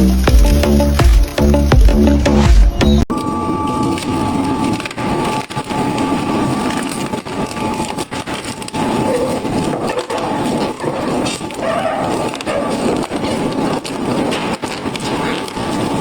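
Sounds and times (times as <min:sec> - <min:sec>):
music with heavy beat: 0:00.0 - 0:03.0
machine whine: 0:00.0 - 0:16.0
shredder crunching and cracking: 0:00.0 - 0:16.0.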